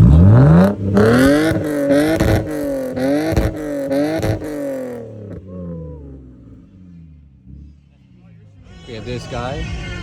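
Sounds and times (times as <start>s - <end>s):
car engine revs bouncing on limiter: 0.0s - 6.6s
exhaust pops and bangs: 0.9s - 5.4s.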